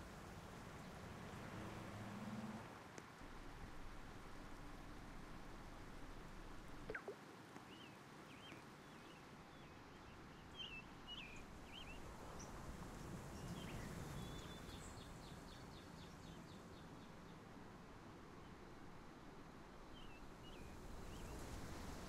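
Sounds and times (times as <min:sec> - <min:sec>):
background hiss: 0:00.0 - 0:22.0
faint bird chirps: 0:06.8 - 0:12.5.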